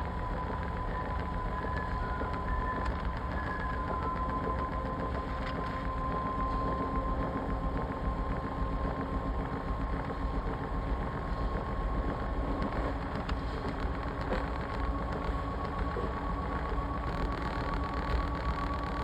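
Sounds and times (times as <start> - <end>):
thin whine: 11.5 - 19.0.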